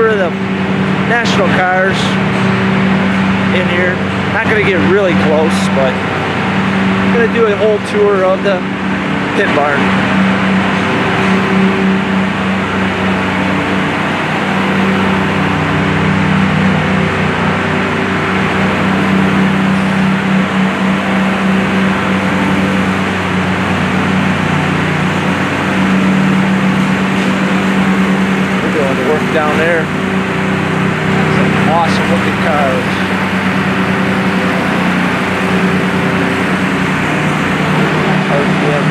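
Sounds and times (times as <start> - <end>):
machinery droning hum: 0.0 - 38.9.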